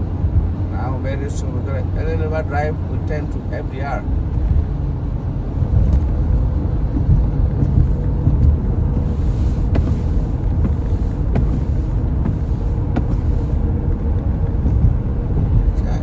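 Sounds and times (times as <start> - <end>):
road rumble of tyres and engine: 0.0 - 16.0.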